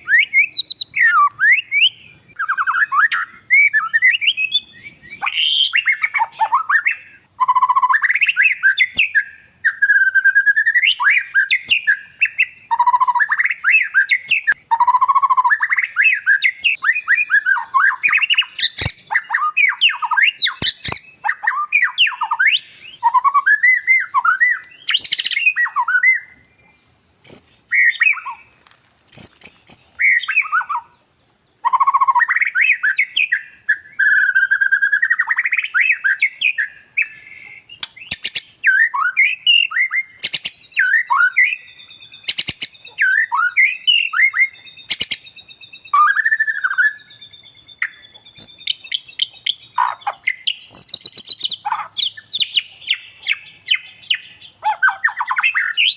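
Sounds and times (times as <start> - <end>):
bird singing whistled phrases: 0.0 - 26.5, 27.2 - 28.5, 29.1 - 31.0, 31.6 - 55.9
steady high hiss: 7.0 - 33.3
sharp clicks: 20.6 - 21.1.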